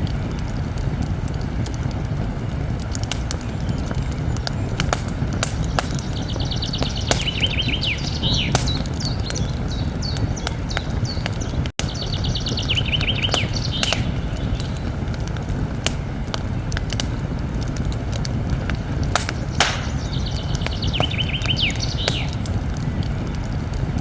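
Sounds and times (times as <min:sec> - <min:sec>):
campfire crackling and popping: 0:00.0 - 0:24.0
songbird trilling: 0:05.5 - 0:14.9, 0:19.2 - 0:22.5.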